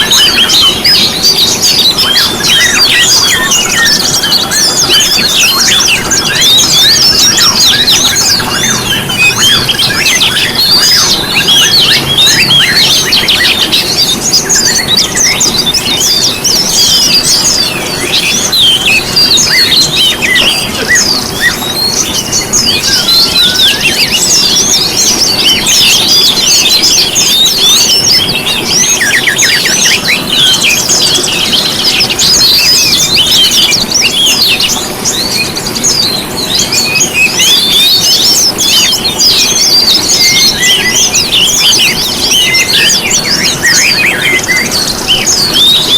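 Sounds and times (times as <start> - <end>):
bird fast trill: 0.0 - 45.9
songbirds chirping and trilling: 0.0 - 45.9.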